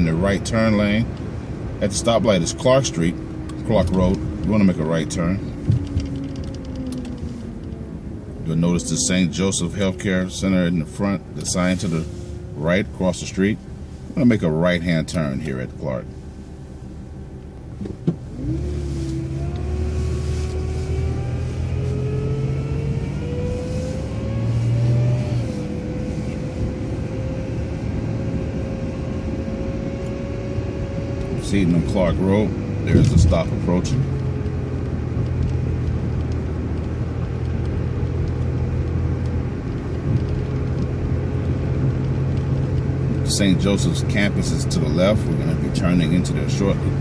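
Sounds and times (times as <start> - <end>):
drivetrain whine rising: 0.0 - 47.0
bus engine accelerating: 16.5 - 47.0
light ticks: 34.4 - 38.6.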